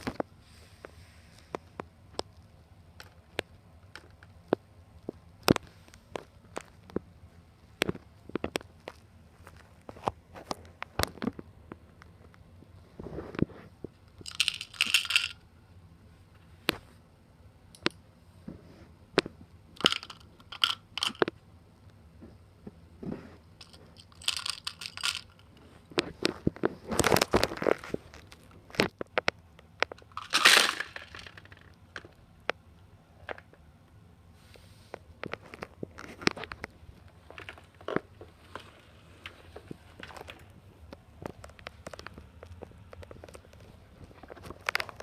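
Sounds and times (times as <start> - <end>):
clicks of small hard objects: 14.1 - 15.4, 19.2 - 21.4, 23.6 - 32.6
crinkly rustles: 22.7 - 32.1, 34.4 - 45.0.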